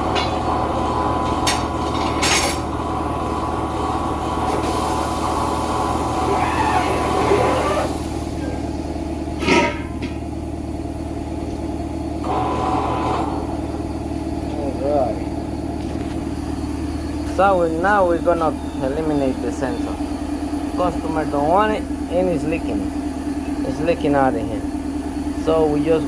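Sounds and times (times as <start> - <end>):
steady machine hum: 0.0 - 26.0.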